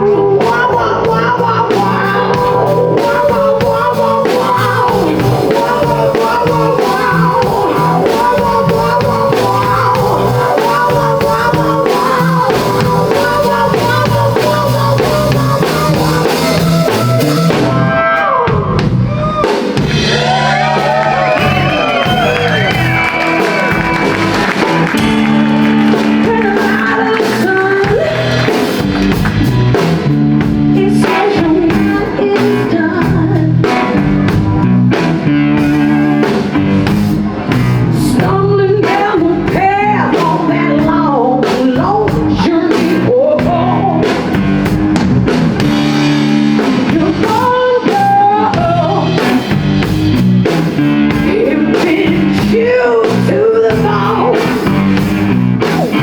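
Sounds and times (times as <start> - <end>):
person singing: 0.0 - 34.2, 37.9 - 44.4, 46.3 - 49.9, 50.9 - 55.0
blues-rock band playing: 0.0 - 56.0.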